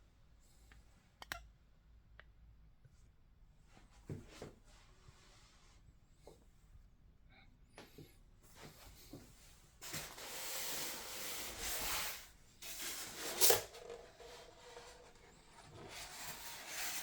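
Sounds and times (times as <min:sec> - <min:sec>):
packaging scraping: 0:09.8 - 0:17.0.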